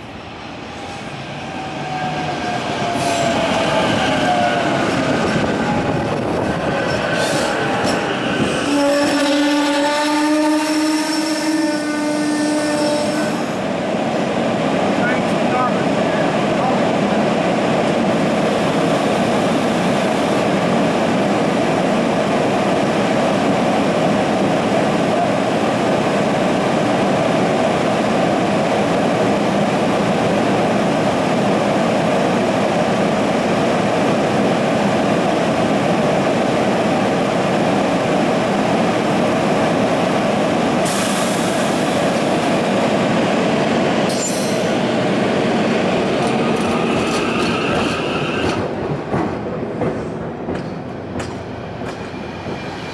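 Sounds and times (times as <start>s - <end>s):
train wheels rolling on rails: 0.0s - 52.9s.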